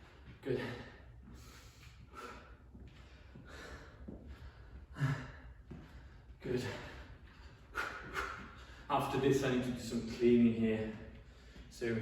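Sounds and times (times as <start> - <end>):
man breathing hard: 0.0 - 8.9, 11.1 - 11.7.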